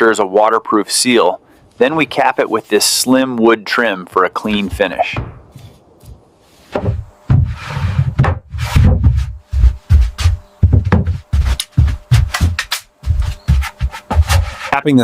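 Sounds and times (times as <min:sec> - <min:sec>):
hammering wooden planks: 0:04.4 - 0:14.8.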